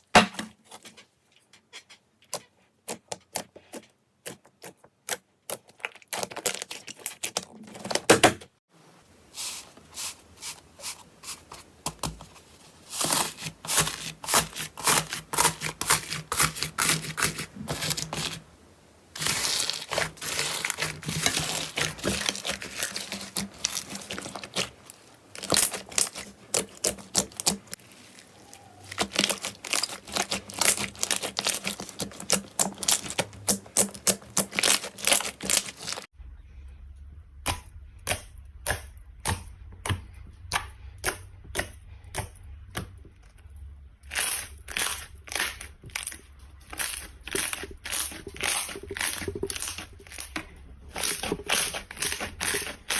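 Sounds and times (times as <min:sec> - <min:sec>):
slime crackling and popping: 0:19.1 - 0:36.1, 0:44.1 - 0:52.9.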